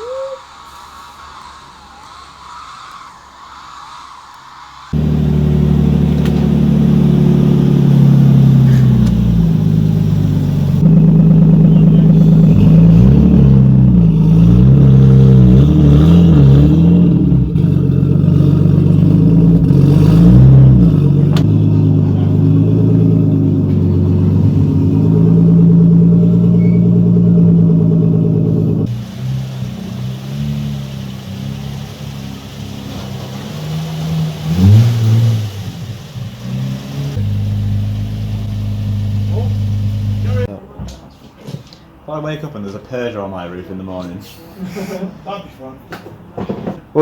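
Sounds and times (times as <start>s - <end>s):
car engine revving: 4.8s - 40.5s.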